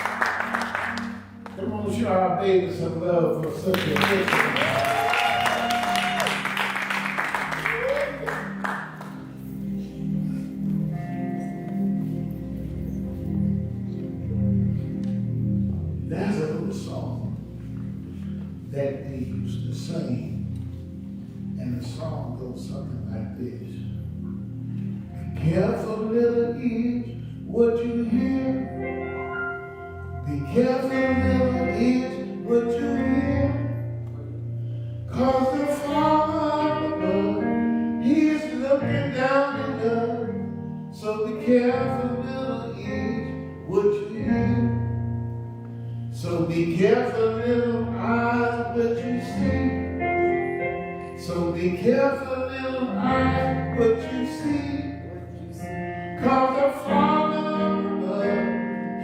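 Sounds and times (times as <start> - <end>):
congregation singing: 51.2 - 58.5.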